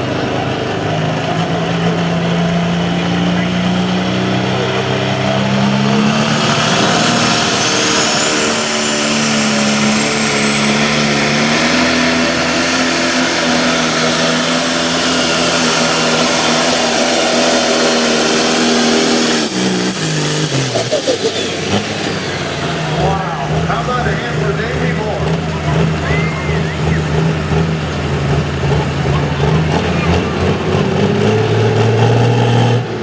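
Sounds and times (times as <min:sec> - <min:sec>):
tractor engine at full throttle: 0:00.0 - 0:33.0
thin whistle rising in pitch: 0:06.8 - 0:13.1, 0:26.0 - 0:27.1.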